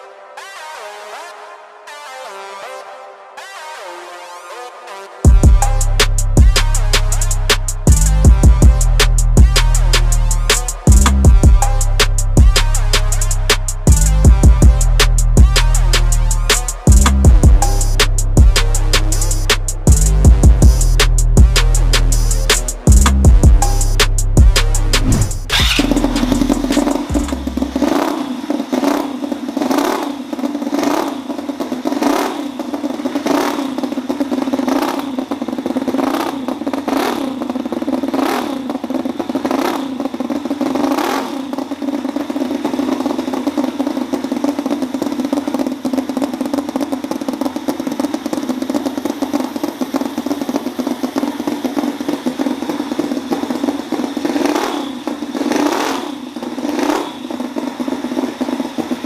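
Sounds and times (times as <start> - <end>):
sharp knock: 25.0 - 27.4
small engine clattering: 25.5 - 59.0.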